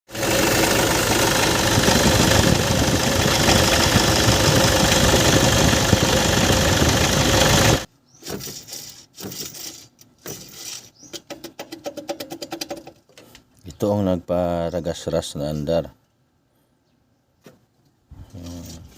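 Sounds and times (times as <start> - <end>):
alternator grinding: 0.1 - 7.9
car engine humming: 0.1 - 7.9.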